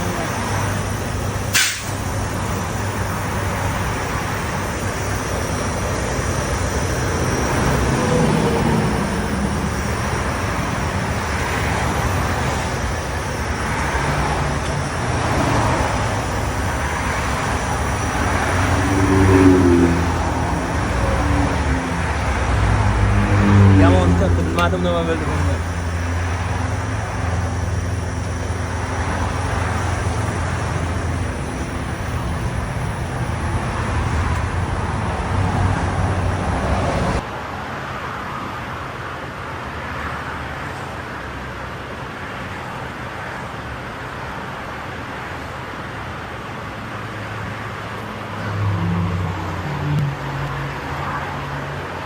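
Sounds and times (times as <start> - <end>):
truck engine droning: 0.0 - 37.2
road traffic rush: 0.0 - 52.0.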